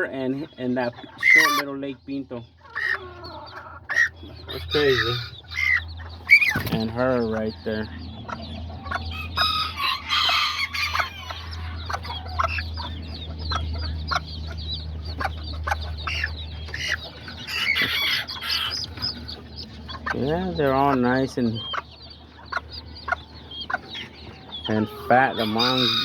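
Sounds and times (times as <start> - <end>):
chicks peeping: 0.0 - 26.0
hens clucking: 0.0 - 26.0
rooster crowing: 9.1 - 11.8, 24.8 - 26.0.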